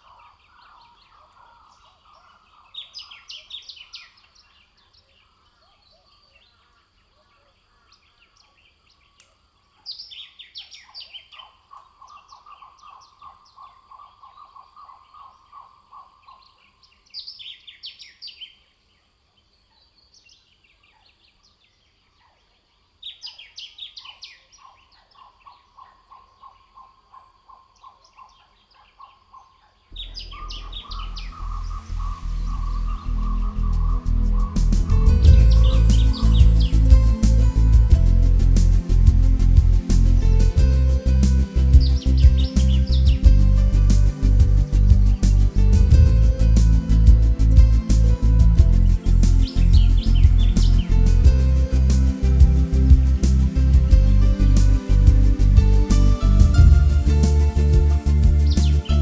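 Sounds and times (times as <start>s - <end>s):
low repeated bird call: 23.2s - 59.0s
high tumbling birdsong: 29.9s - 59.0s
music: 30.0s - 59.0s.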